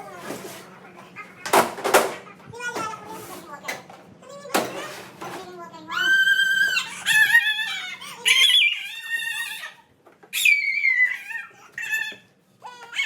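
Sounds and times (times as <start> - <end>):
young children squealing: 10.4 - 12.2.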